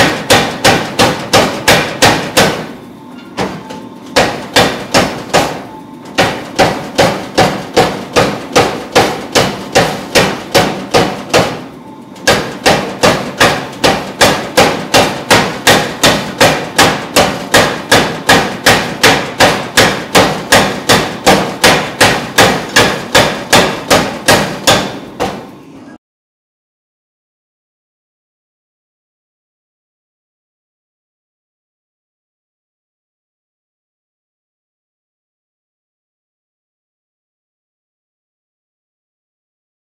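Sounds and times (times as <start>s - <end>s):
hammer blows on steel: 0.0s - 25.5s.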